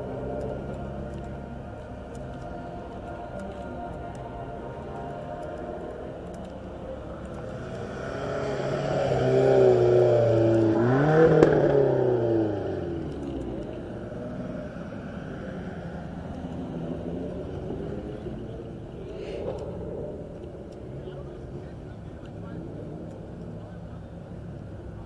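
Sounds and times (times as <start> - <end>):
car accelerating past: 7.4 - 18.3.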